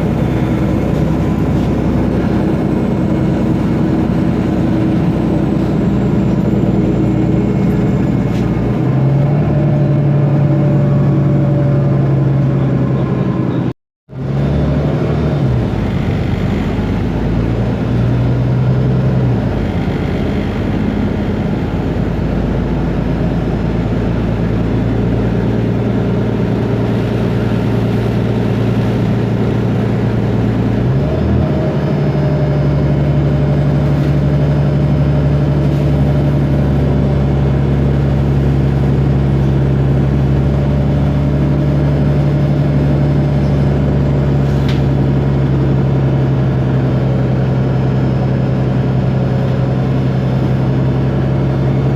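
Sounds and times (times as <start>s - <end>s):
bus diesel engine running: 0.0s - 51.9s.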